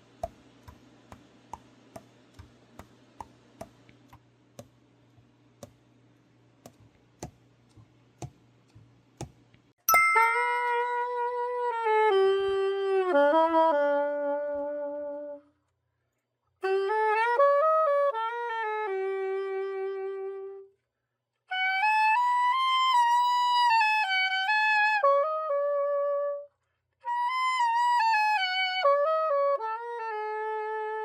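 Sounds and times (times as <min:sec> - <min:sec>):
soprano saxophone solo: 0:11.1 - 0:15.5, 0:16.6 - 0:20.8, 0:21.5 - 0:31.0.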